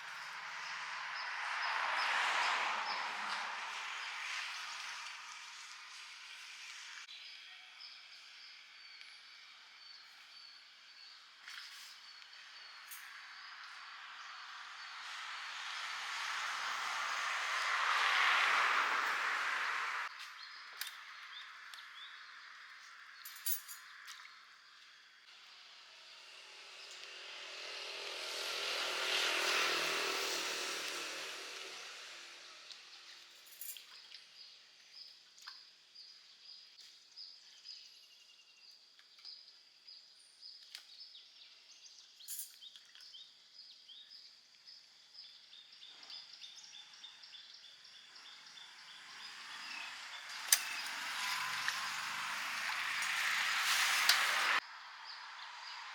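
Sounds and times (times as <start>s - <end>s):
quiet outdoor background noise: 0.0s - 55.9s
vehicle passing: 0.2s - 6.8s, 13.2s - 20.2s, 25.6s - 32.8s, 48.2s - 55.9s.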